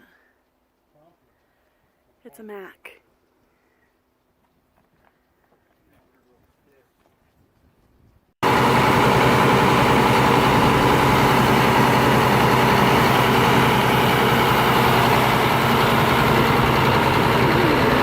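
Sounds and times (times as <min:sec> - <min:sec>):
diesel truck engine idling: 0:08.4 - 0:18.0.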